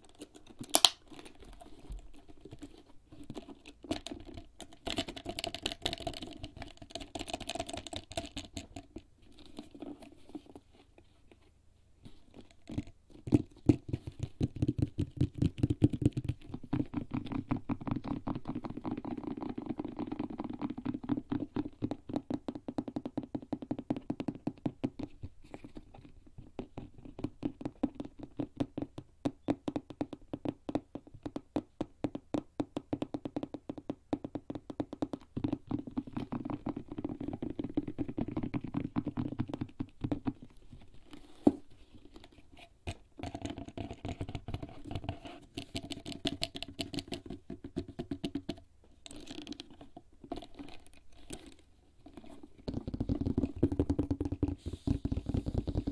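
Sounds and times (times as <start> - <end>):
fingertips tapping on leather bag: 12.3 - 55.9
scratching and rubbing on leather: 40.5 - 42.8, 50.4 - 53.6.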